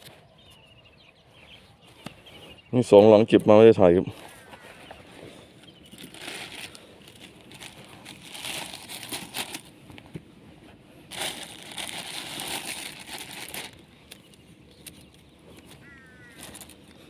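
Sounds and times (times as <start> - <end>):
rustling and crinkling: 4.1 - 17.0.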